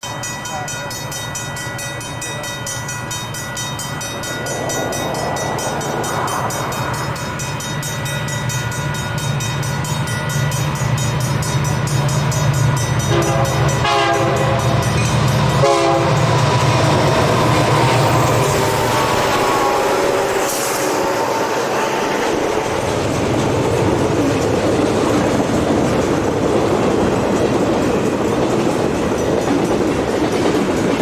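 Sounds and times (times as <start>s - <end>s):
diesel locomotives rumbling: 0.0s - 31.0s
train air horn: 13.0s - 16.5s, 18.4s - 22.1s.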